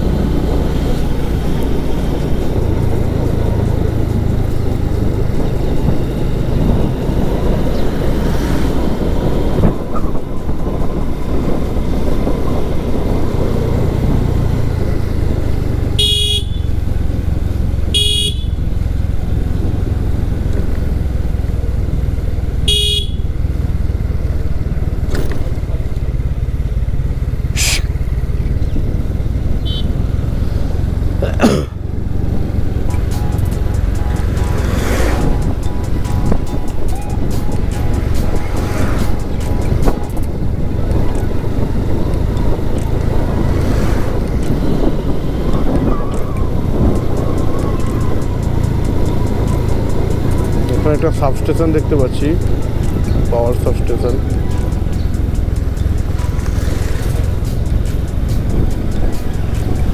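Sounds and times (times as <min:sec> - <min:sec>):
motorcycle engine running: 0:00.0 - 0:59.9
wind rumble: 0:00.0 - 0:59.9
vehicle horn toots: 0:15.9 - 0:16.9, 0:17.9 - 0:18.7, 0:22.6 - 0:23.5, 0:29.6 - 0:30.1, 0:33.1 - 0:40.2.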